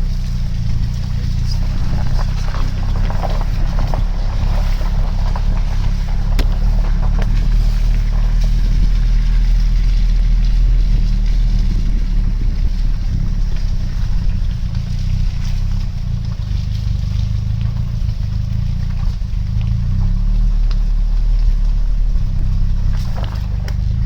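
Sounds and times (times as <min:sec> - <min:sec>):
faint ticks: 0:00.0 - 0:24.0
loud low rumble: 0:00.0 - 0:24.0.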